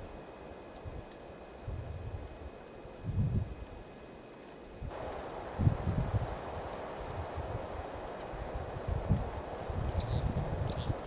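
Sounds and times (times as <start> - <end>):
wind on microphone: 0.8 - 3.7, 4.8 - 11.0
faint bird chirp: 9.8 - 11.0.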